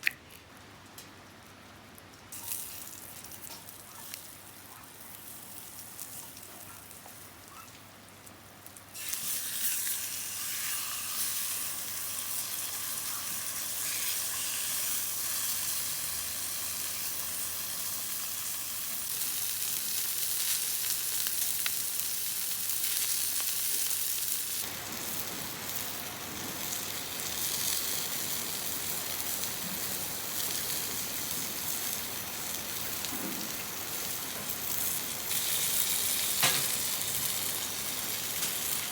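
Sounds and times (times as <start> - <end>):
food sizzling in a pan: 8.9 - 38.9.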